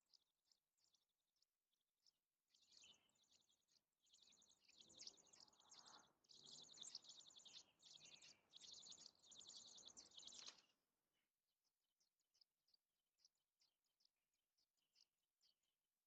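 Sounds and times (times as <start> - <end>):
songbird twittering: 2.5 - 10.7.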